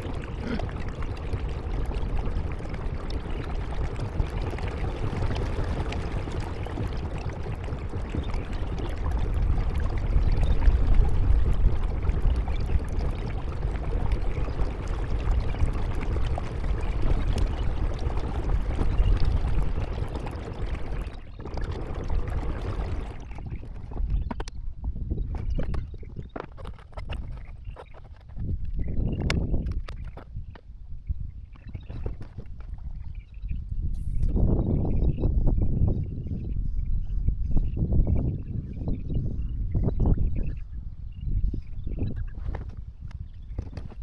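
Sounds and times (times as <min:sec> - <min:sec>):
water splashing around kayak: 0:00.0 - 0:23.8
deep rumble: 0:00.0 - 0:24.3.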